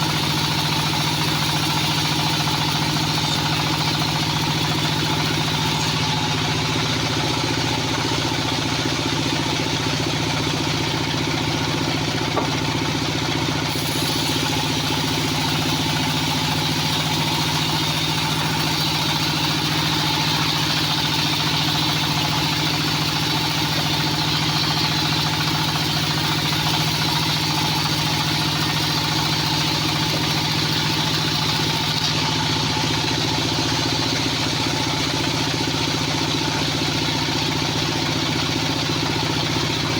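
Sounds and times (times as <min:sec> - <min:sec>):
band sawmill engine drone: 0:00.0 - 0:39.9.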